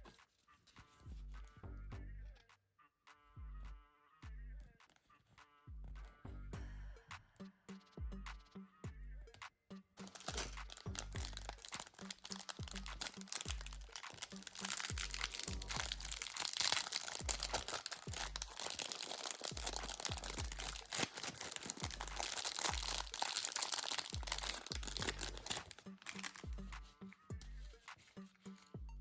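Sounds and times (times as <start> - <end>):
background music with bass beat: 0.8 - 2.5, 3.1 - 4.8, 5.7 - 11.6, 24.2 - 29.0
plastic packaging crinkling: 10.0 - 26.6.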